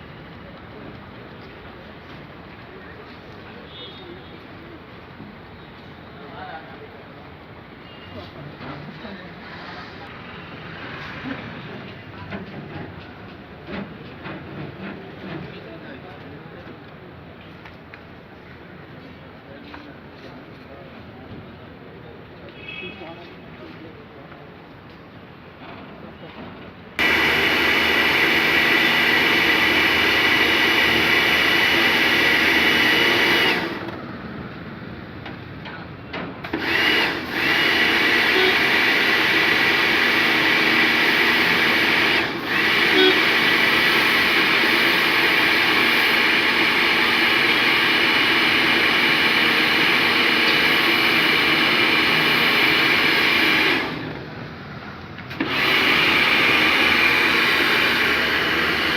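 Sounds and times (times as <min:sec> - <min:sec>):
power tool motor whining: 0:27.0 - 0:34.0, 0:36.4 - 0:54.2, 0:55.3 - 0:58.9.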